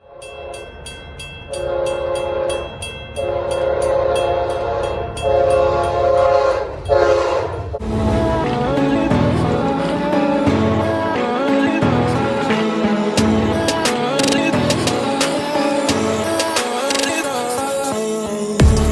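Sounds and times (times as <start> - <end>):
railroad crossing bell ringing: 0.0 - 7.8
train horn blasts: 1.6 - 8.2.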